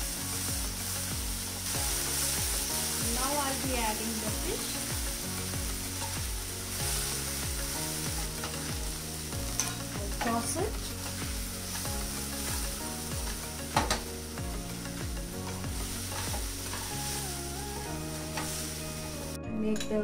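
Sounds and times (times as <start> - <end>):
fish sizzling in a pan: 0.0 - 19.4
background music with steady beat: 0.0 - 20.0
wooden spatula scraping a pan: 15.4 - 17.2.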